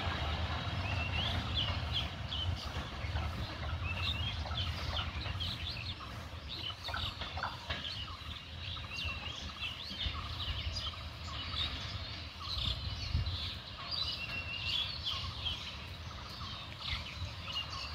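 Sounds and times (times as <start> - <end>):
birds chirping and calling: 0.0 - 17.9
steady low rumble: 0.0 - 17.9.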